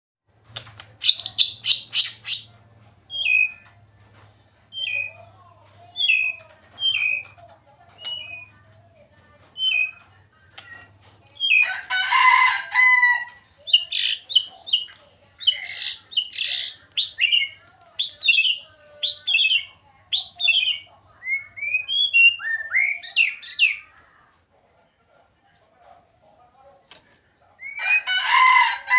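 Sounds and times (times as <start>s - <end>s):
bird singing whistled phrases: 9.6s - 10.0s, 15.5s - 23.8s.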